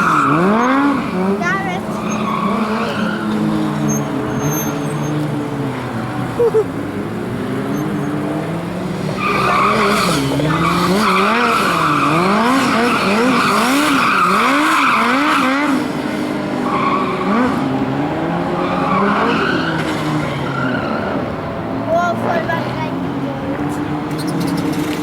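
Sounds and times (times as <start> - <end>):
tyres squealing: 0.0 - 6.9, 9.1 - 15.4, 18.5 - 21.2
motorcycle engine revving: 0.0 - 21.2.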